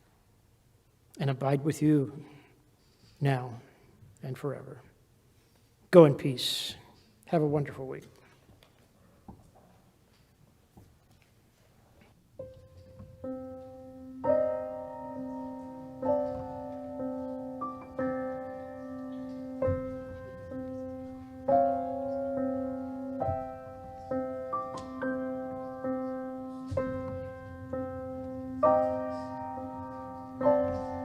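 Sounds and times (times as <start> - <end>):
slow piano music: 12.3 - 31.0.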